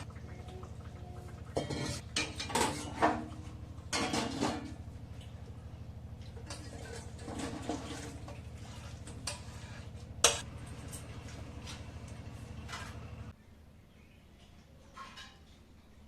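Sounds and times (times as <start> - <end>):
steady low hum: 0.0 - 13.9
utensil scraping a pot: 1.6 - 3.4, 6.4 - 10.5.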